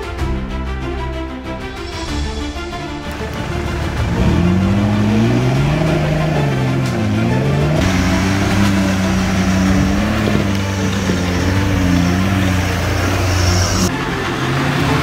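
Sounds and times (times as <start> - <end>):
vehicle engine running: 3.3 - 15.0.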